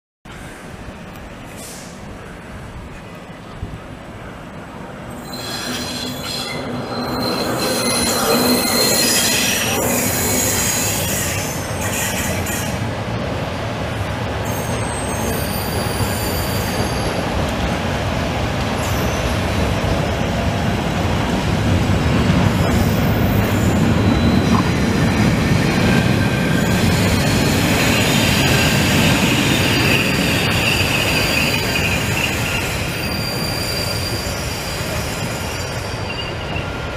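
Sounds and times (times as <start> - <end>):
high-pitched wheel squeal: 5.2 - 12.8, 14.5 - 17.2, 22.7 - 24.8, 26.5 - 36.7.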